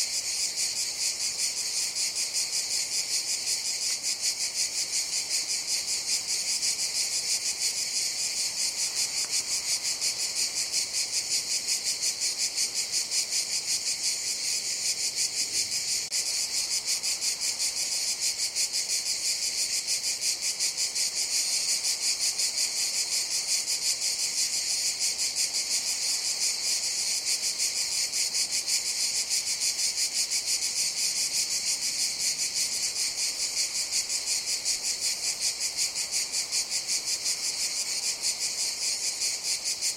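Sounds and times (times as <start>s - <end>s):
cicadas buzzing: 0.0s - 39.9s.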